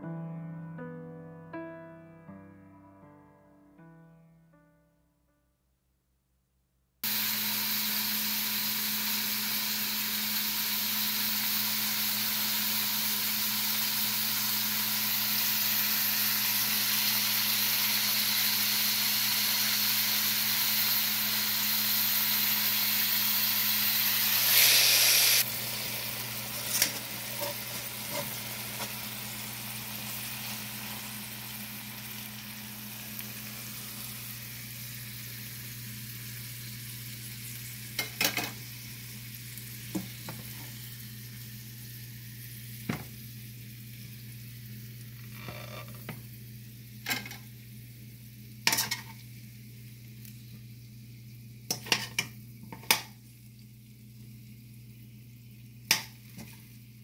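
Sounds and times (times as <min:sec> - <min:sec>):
food sizzling in a pan: 0:07.0 - 0:57.0.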